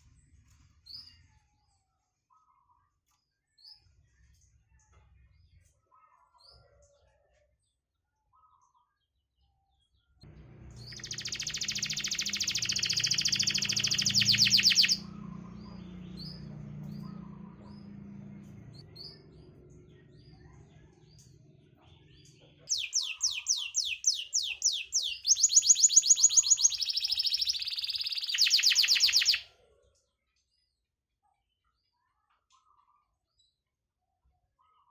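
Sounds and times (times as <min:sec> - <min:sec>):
canary singing: 0:10.3 - 0:19.4, 0:22.7 - 0:29.4.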